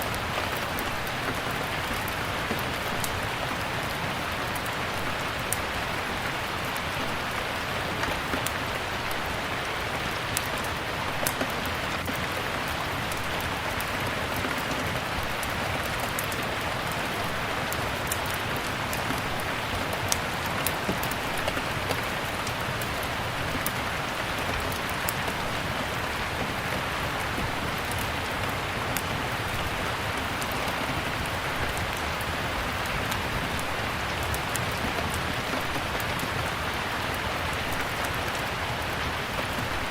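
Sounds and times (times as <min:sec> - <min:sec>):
steady rain: 0:00.0 - 0:39.9
wood fire crackling: 0:00.0 - 0:39.9.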